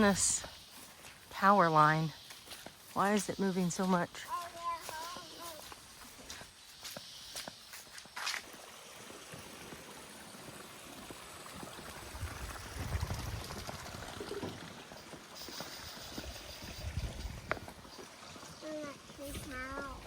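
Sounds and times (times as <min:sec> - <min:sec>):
running water rushing: 0:00.0 - 0:20.0.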